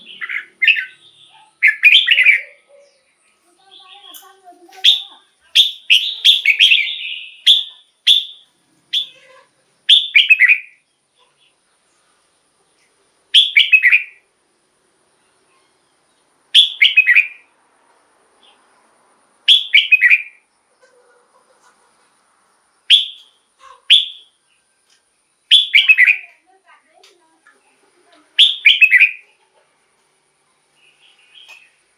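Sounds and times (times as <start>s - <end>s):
bird singing short bright phrases: 0.0s - 11.6s, 13.3s - 14.2s, 15.3s - 17.5s, 19.5s - 20.4s, 22.9s - 26.5s, 27.6s - 29.4s, 30.8s - 31.8s.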